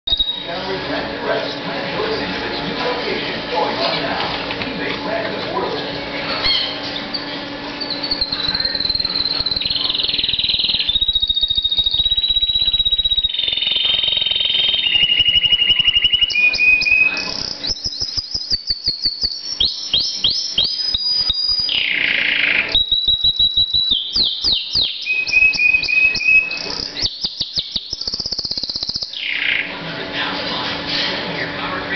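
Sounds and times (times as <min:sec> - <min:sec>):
canary singing: 0:00.0 - 0:01.0, 0:05.9 - 0:29.8.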